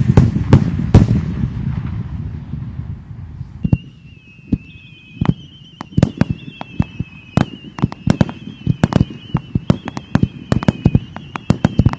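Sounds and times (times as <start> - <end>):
fireworks popping: 0.0 - 11.9
high wavering whistle: 3.6 - 11.9.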